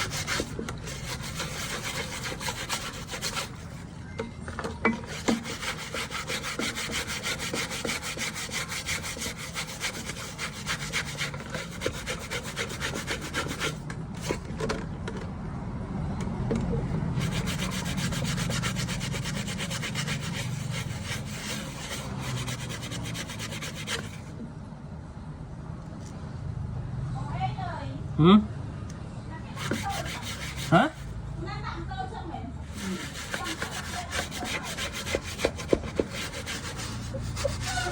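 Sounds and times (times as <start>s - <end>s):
cloth scrubbing a screen: 0.0s - 14.6s, 17.1s - 24.3s, 29.5s - 31.2s, 32.7s - 37.9s.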